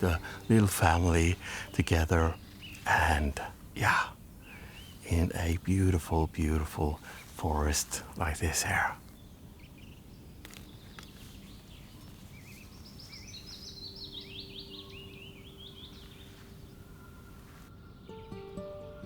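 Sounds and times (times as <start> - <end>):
faint forest background noise: 0.0 - 19.0
songbird chirping: 0.0 - 19.0.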